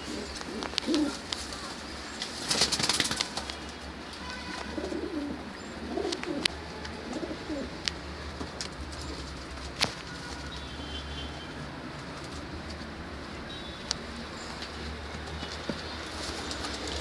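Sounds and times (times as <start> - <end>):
wing flaps: 0.0 - 5.0
pigeons cooing: 0.0 - 17.0.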